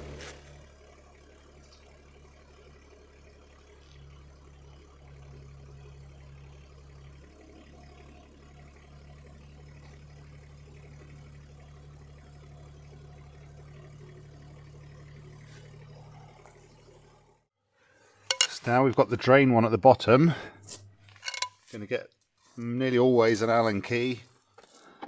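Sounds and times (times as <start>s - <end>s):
diesel engine running: 0.0s - 17.5s.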